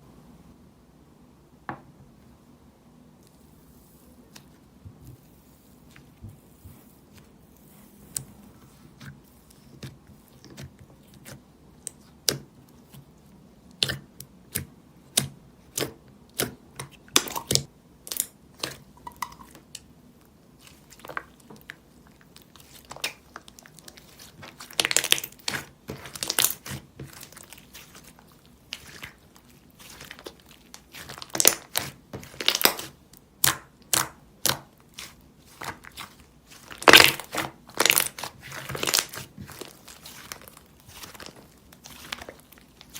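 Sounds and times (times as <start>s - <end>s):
crackly slime stretching: 20.6s - 42.9s
slime squished by hand: 20.6s - 42.9s.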